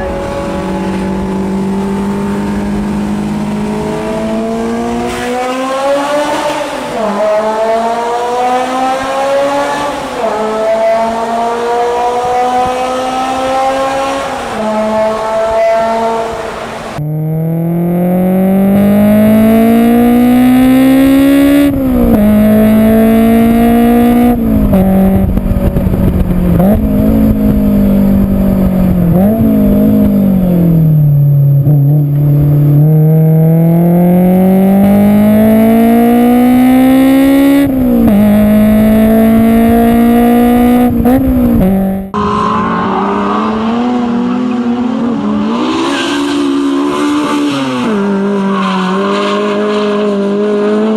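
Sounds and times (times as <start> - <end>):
race car engine at high revs: 0.0 - 50.9.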